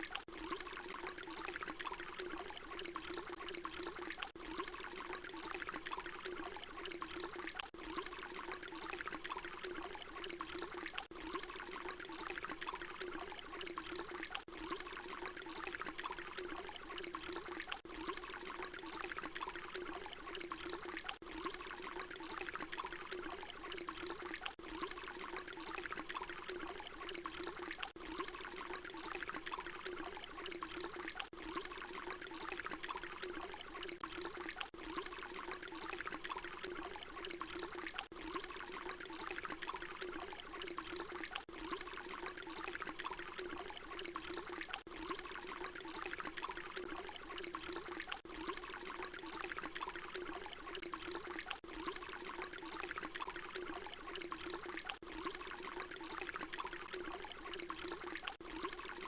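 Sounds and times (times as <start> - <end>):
water pouring and trickling: 0.0 - 59.0.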